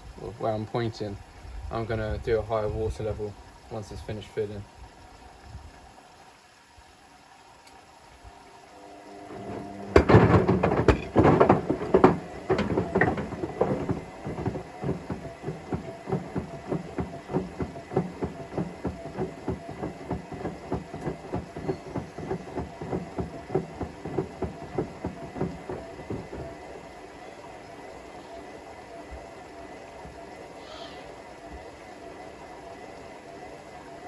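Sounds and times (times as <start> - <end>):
loud bangs: 9.3 - 26.6
washing machine drum turning: 9.3 - 26.9
steady knocking of tumbling load: 9.3 - 27.3.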